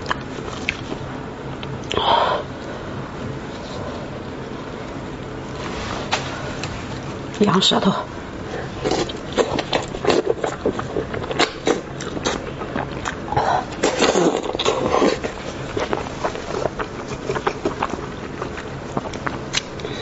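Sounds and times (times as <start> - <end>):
wet chewing and lip smacking: 8.8 - 20.0.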